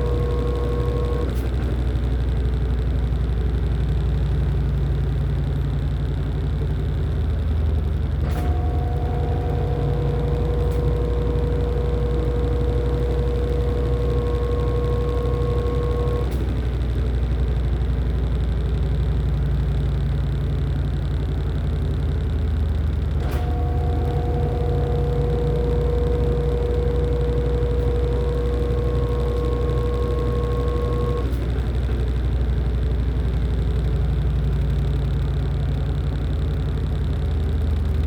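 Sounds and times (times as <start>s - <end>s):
washing machine whine: 0.0s - 1.4s, 8.2s - 16.5s, 23.2s - 33.1s
washing machine humming: 8.4s - 16.2s.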